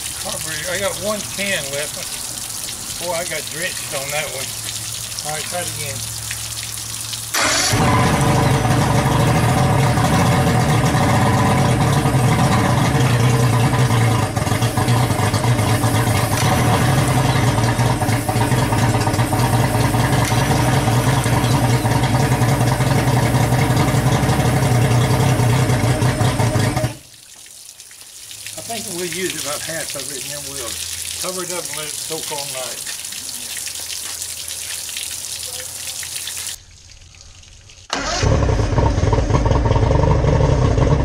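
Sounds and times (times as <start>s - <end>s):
outboard engine drone: 7.4s - 27.0s, 38.0s - 41.0s.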